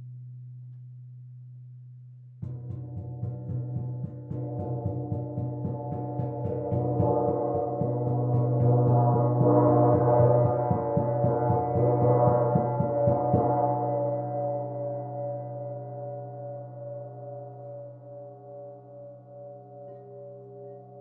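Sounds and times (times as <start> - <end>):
gong mallet roll: 2.9 - 16.4.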